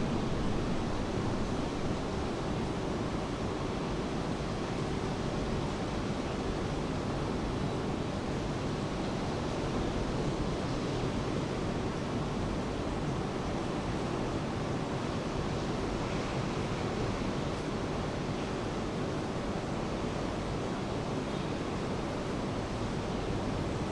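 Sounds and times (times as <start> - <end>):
steady rain: 0.0 - 5.6.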